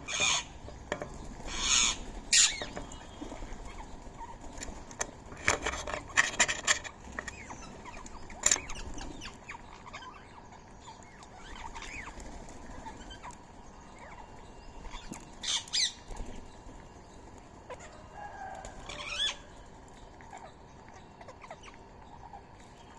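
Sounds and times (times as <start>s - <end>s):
small birds chirping: 0.0s - 22.9s
birds wings flapping: 11.4s - 13.6s.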